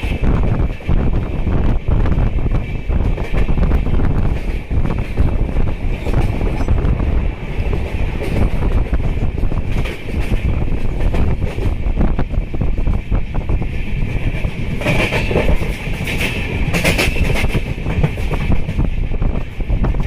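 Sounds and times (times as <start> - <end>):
rush of air: 0.0 - 20.0
train rumble: 0.0 - 20.0
wheels clattering over rail joints: 14.1 - 18.8.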